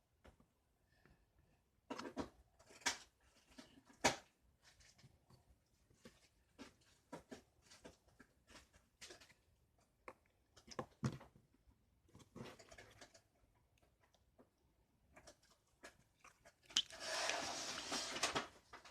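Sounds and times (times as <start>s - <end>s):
rustling noise: 16.9s - 18.9s.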